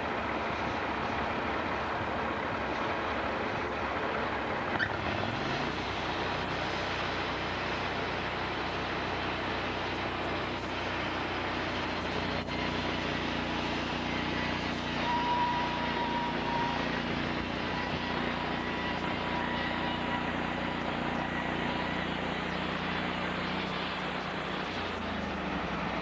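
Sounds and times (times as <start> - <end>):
sawmill machinery running: 0.0 - 26.0
thin high whine: 12.4 - 23.8.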